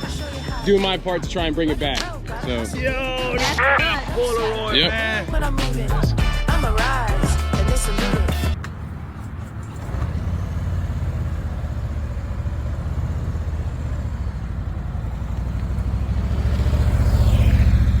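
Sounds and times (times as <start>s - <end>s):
motorcycle engine accelerating: 8.4s - 18.0s.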